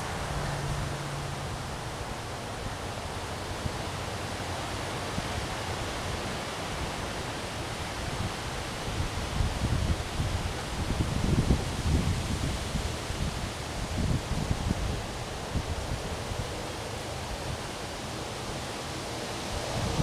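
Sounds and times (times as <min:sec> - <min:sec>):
wind gusting through trees: 0:00.0 - 0:20.0.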